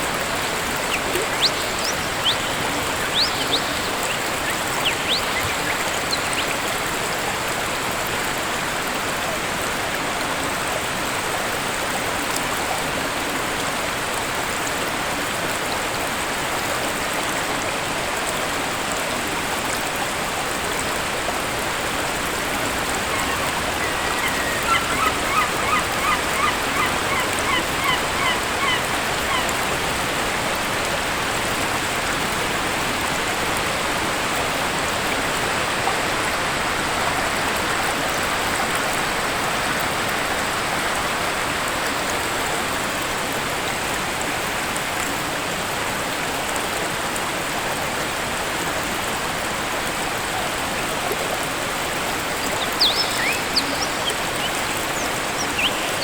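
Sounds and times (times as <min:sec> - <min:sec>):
waterfall rushing: 0:00.0 - 0:12.9, 0:13.5 - 0:43.2, 0:46.7 - 0:56.0
bird calling: 0:00.3 - 0:07.0, 0:22.3 - 0:30.1, 0:50.3 - 0:56.0.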